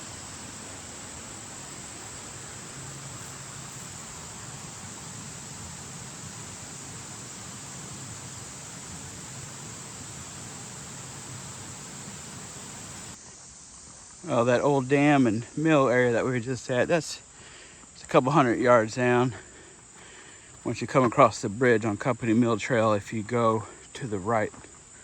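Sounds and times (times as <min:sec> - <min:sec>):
creek water rushing: 0:00.0 - 0:13.2.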